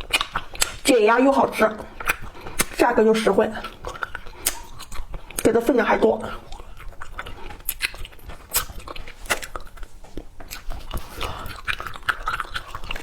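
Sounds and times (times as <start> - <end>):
chewing candies: 0.0 - 13.0.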